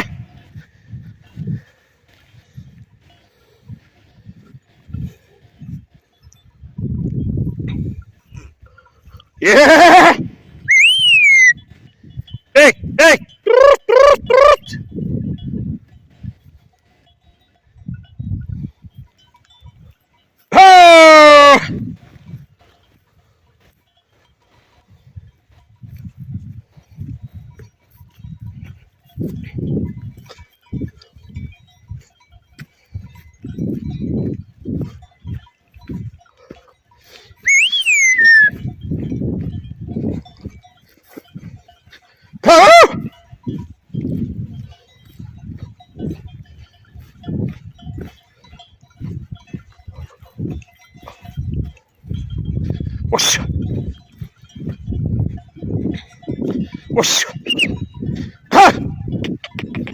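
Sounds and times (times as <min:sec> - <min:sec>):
bell tinkles: 0:05.6 - 0:09.0, 0:14.7 - 0:20.5, 0:22.7 - 0:42.4, 0:43.0 - 0:59.9
livestock bleating: 0:09.4 - 0:10.2
person shouting loudly: 0:09.4 - 0:11.5, 0:12.6 - 0:14.7, 0:20.5 - 0:21.8, 0:37.5 - 0:38.5, 0:42.4 - 0:43.1, 0:53.1 - 0:53.5, 0:58.5 - 0:59.0
goat high-pitched cry: 0:09.4 - 0:11.6, 0:37.4 - 0:38.6.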